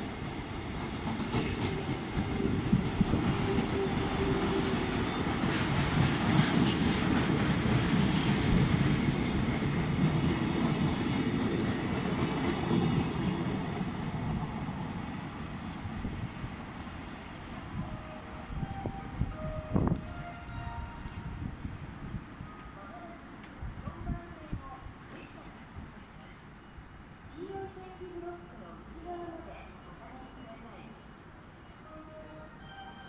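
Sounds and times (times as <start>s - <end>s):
freight train wheels clacking: 0.3s - 14.5s.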